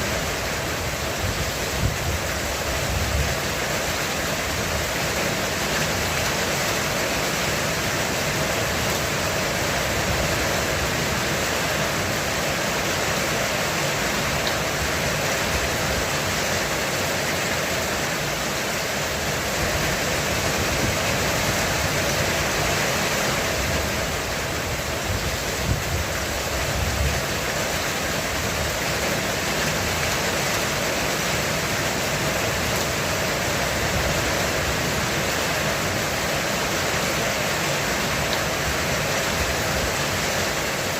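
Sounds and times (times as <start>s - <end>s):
heavy rain drumming on a roof: 0.0s - 40.9s.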